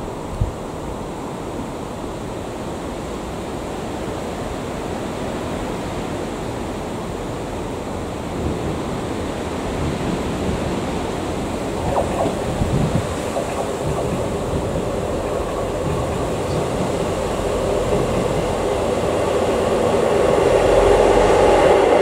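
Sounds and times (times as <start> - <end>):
train rushing noise: 0.0 - 22.0
train whine: 0.0 - 22.0.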